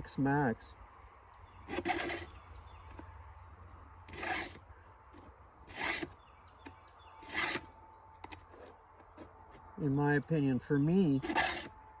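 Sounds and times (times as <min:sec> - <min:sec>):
file rasping on chain: 0:01.7 - 0:02.4, 0:04.1 - 0:04.6, 0:05.7 - 0:06.2, 0:07.2 - 0:07.7, 0:11.2 - 0:11.7.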